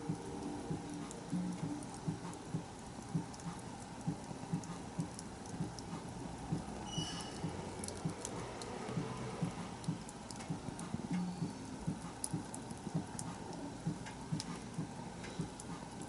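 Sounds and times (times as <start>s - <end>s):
wood fire crackling: 0.0s - 16.0s
high whistle: 6.8s - 7.4s.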